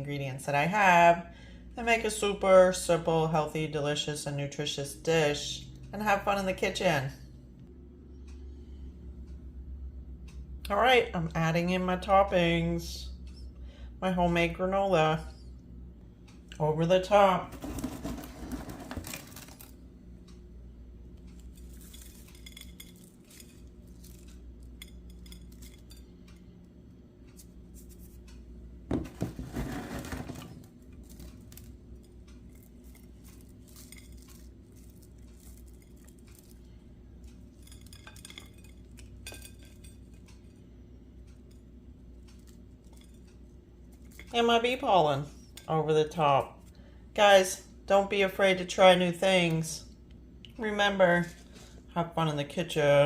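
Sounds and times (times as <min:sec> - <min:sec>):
low steady hum: 0:00.0 - 0:53.0
granola sprinkling: 0:21.3 - 0:26.0, 0:29.5 - 0:39.8.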